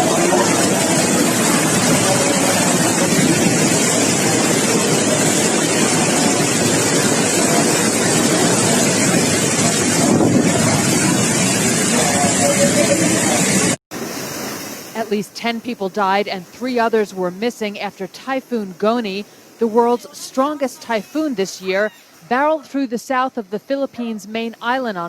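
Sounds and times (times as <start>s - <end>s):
strong wind rushing: 0.0s - 13.8s
wind buffeting microphone: 0.0s - 13.8s.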